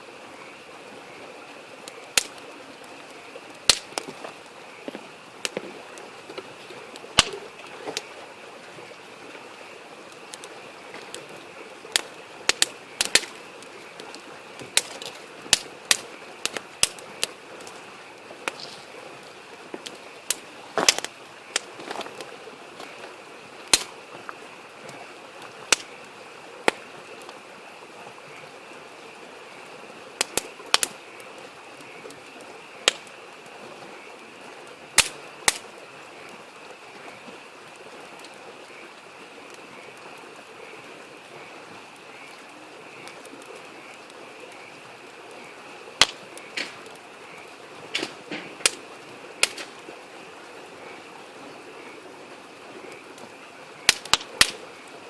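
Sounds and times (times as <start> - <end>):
campfire crackling and popping: 0.0 - 55.0
frogs chorus: 0.0 - 55.0
small stream murmuring: 0.0 - 55.0.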